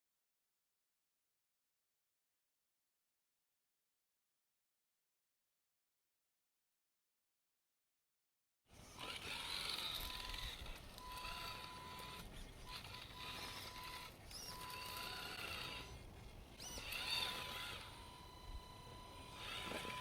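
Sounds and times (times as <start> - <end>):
electric motor whining: 8.8 - 20.0.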